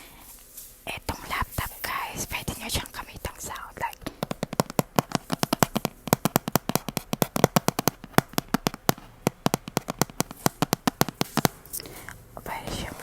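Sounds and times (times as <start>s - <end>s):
tapping and clicking on object: 3.5s - 12.9s.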